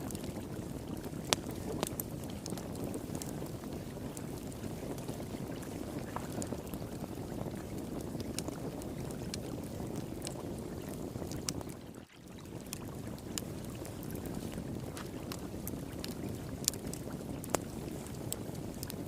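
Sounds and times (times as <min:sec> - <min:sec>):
wood fire crackling: 0:00.0 - 0:19.0
water flowing: 0:04.0 - 0:09.1.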